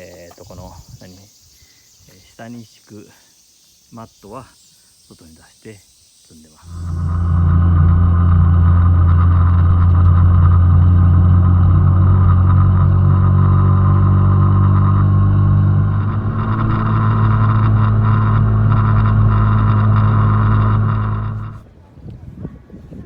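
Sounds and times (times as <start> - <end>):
motorcycle engine running: 6.7 - 21.6.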